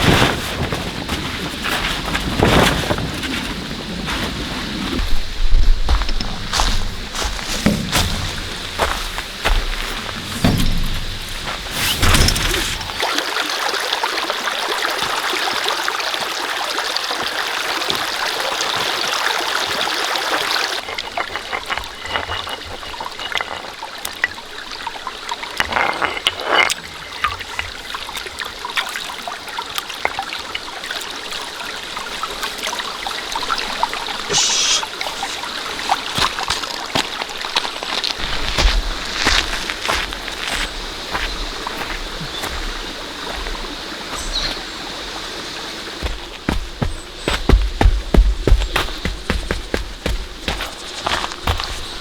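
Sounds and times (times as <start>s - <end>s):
rain falling: 0.0s - 52.0s
knocks: 6.0s - 13.0s, 46.0s - 51.9s.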